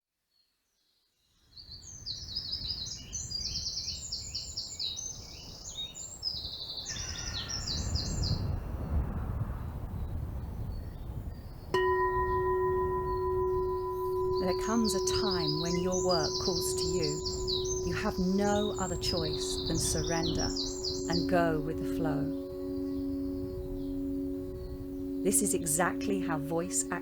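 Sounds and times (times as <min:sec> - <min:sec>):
singing bowl tone: 0:11.8 - 0:27.0
birds singing quick trills: 0:14.2 - 0:25.5.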